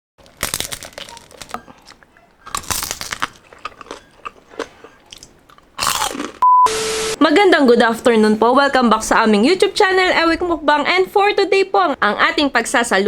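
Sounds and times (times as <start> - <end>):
crunching fried skin: 0.2 - 6.4.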